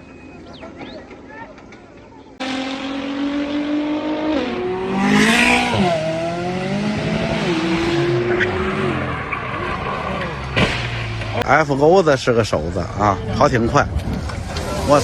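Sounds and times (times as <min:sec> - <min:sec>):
car engine revving: 0:02.4 - 0:11.4.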